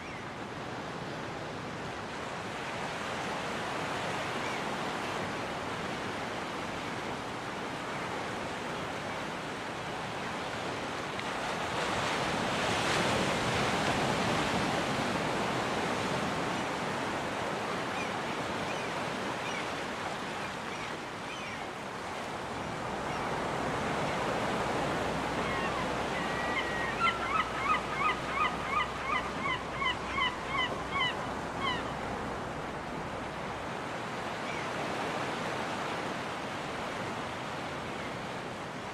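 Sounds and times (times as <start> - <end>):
surf washing on beach: 0.0 - 38.9
gull calling: 25.4 - 32.0.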